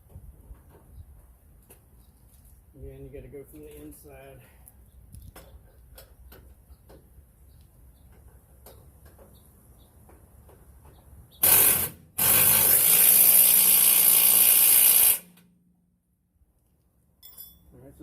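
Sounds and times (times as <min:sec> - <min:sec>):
impact wrench hammering bolt: 0:11.4 - 0:15.2.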